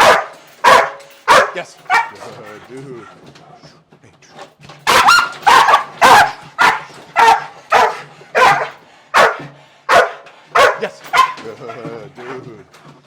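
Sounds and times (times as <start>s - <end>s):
dog barking: 0.0s - 2.2s, 4.8s - 11.5s.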